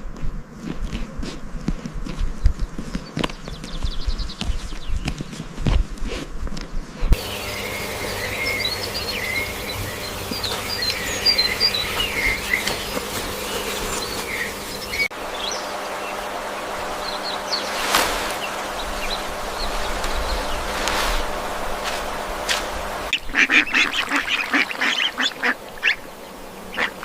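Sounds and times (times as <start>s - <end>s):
small birds chirping: 2.2s - 5.6s, 6.6s - 27.0s
steady hiss: 7.1s - 27.0s
insect-like buzz: 7.2s - 27.0s.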